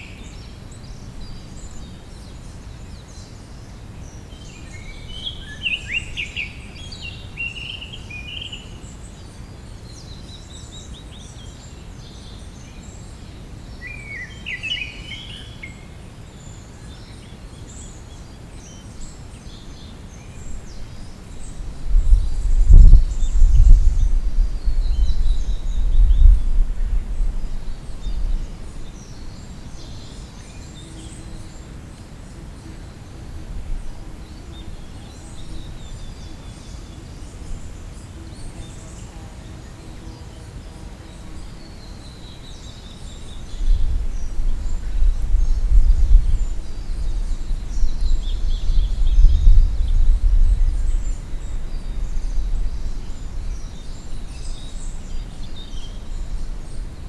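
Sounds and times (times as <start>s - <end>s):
wild birds singing: 0.0s - 57.0s
low gusty rumble: 20.4s - 30.0s, 32.3s - 39.8s, 43.2s - 57.0s.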